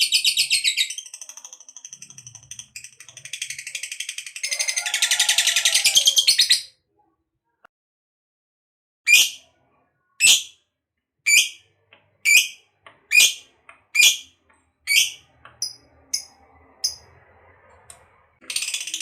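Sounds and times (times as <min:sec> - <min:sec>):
lovebird shrill calls: 0:14.9 - 0:16.3.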